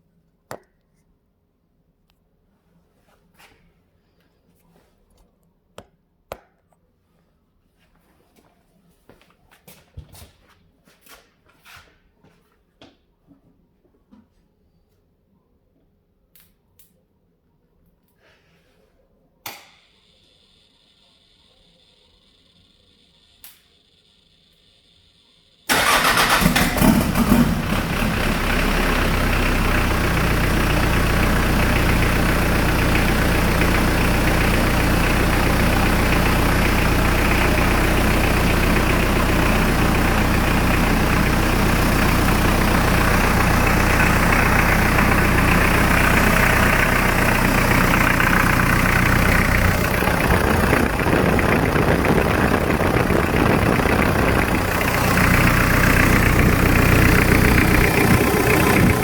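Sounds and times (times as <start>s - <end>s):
diesel engine starting and idling: 25.7s - 59.0s.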